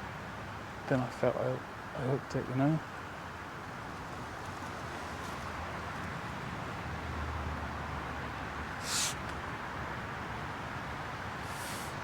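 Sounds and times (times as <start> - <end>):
outdoor background hiss: 0.0 - 12.0
short rustle: 8.8 - 9.4.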